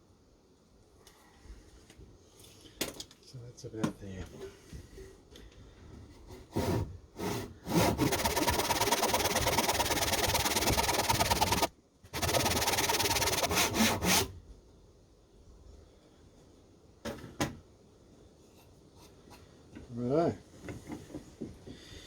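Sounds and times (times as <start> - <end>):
saw rasping through wood: 6.5 - 14.3.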